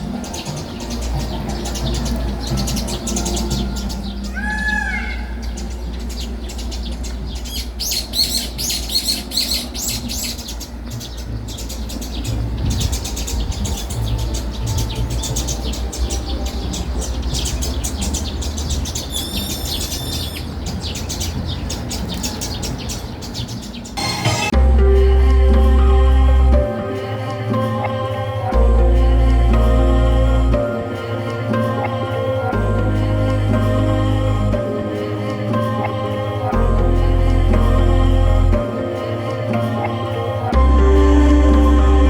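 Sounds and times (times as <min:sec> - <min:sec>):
small birds chirping: 0:00.0 - 0:24.6
steady low hum: 0:23.9 - 0:42.0
loud music: 0:24.0 - 0:42.0.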